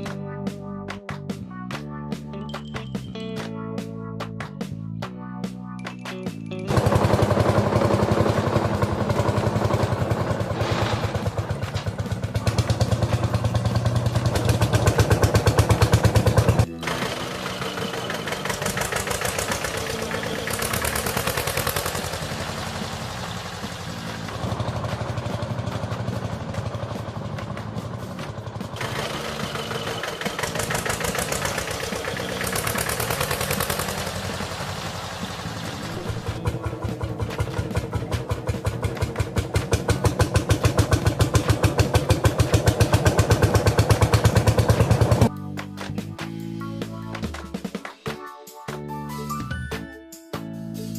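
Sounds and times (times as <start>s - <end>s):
tractor engine chugging: 6.4s - 45.3s.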